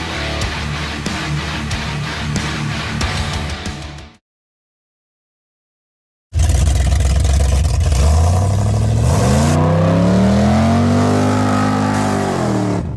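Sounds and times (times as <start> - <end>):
engine revving: 6.4 - 12.9.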